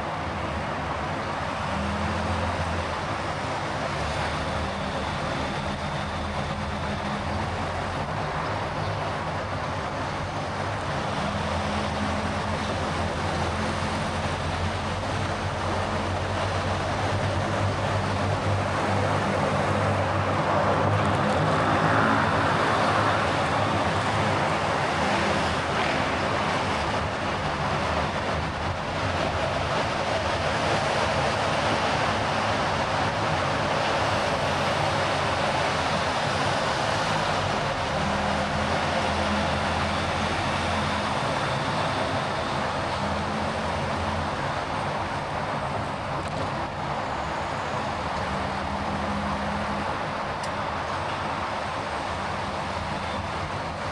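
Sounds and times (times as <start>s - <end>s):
tyre and road noise: 0.0s - 53.9s
car engine hum: 17.5s - 27.6s.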